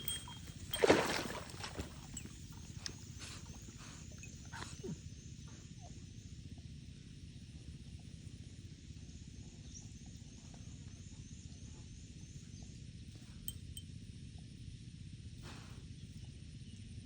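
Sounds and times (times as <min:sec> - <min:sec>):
faint clinks: 0:00.0 - 0:05.0, 0:13.4 - 0:13.9.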